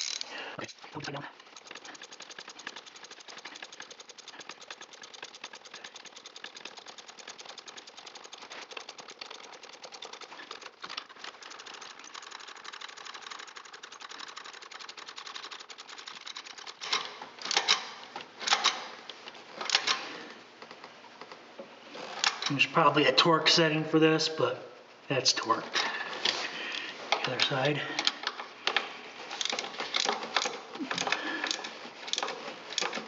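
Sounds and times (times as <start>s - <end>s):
socket ratchet clicking: 1.4s - 18.8s.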